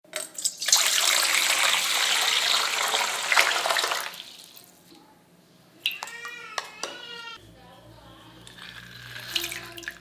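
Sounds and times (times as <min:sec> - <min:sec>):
water gushing: 0:00.6 - 0:04.7.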